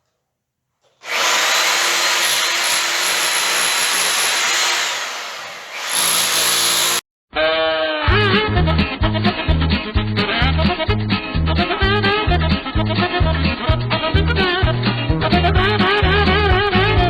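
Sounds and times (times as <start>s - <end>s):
power drill stripping plaster: 1.0s - 7.0s.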